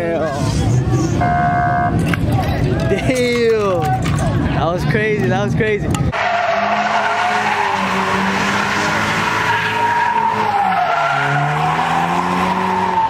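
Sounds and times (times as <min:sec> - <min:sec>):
car engine revving: 0:06.1 - 0:13.0
car tyres squealing: 0:06.1 - 0:13.0.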